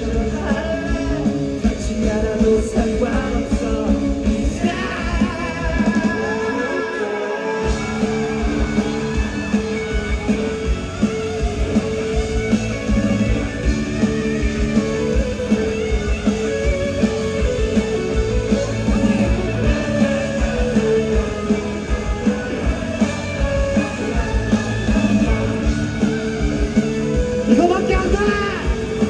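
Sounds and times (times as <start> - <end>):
electric guitar: 0.0 - 29.0
rock band playing: 0.0 - 29.0
drum beat: 7.6 - 29.0.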